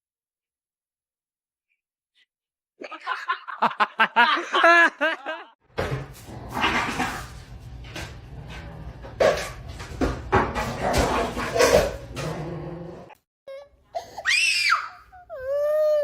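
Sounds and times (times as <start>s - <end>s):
person laughing: 2.8s - 5.6s.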